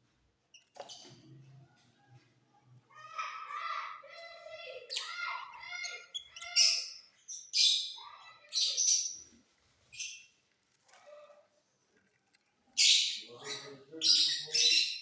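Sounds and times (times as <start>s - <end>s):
lovebirds chattering: 4.9s - 9.3s, 12.8s - 15.0s.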